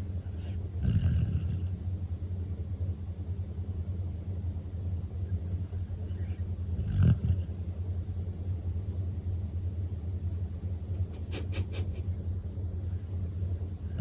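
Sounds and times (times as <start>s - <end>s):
dog snoring: 0.3s - 1.9s, 6.0s - 8.1s.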